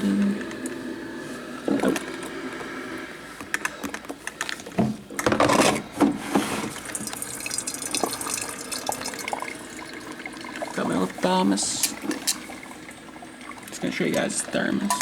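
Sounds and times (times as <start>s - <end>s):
coffee maker gurgling: 0.0s - 15.0s
coffee maker hissing: 0.0s - 15.0s
dripping: 6.7s - 15.0s.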